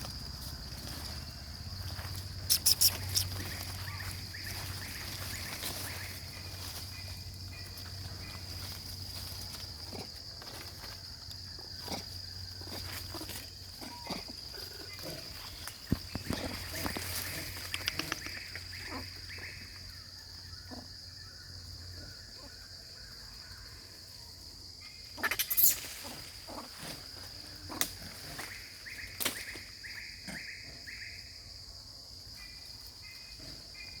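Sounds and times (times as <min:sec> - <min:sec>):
high-pitched insect drone: 0:00.0 - 0:11.3, 0:24.8 - 0:27.6.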